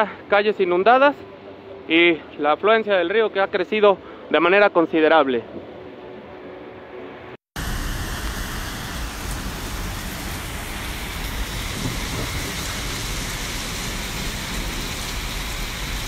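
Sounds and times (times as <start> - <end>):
heavy rain on flooded street: 7.6 - 16.0.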